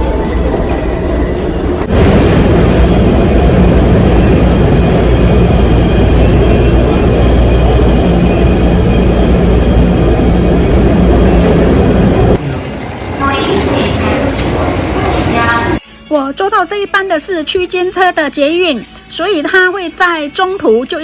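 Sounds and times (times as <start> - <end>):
metro train rumbling: 0.0 - 15.8.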